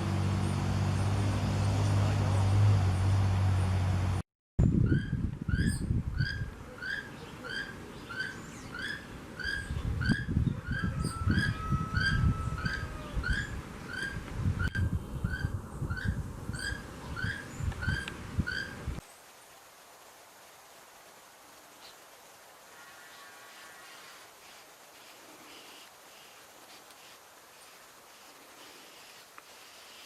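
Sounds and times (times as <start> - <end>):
barbet calling: 4.9 - 18.8
low rumbling microphone noise: 9.6 - 19.0.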